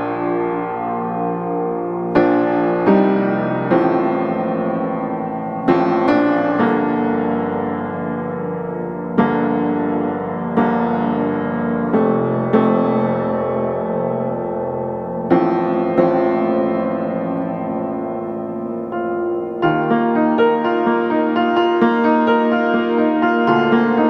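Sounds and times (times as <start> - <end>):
slow piano chords: 0.0 - 24.0.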